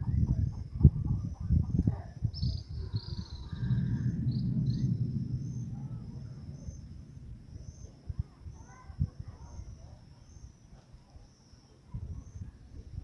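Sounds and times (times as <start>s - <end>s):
low rumble: 0.0s - 9.8s
insects trilling: 2.2s - 13.0s.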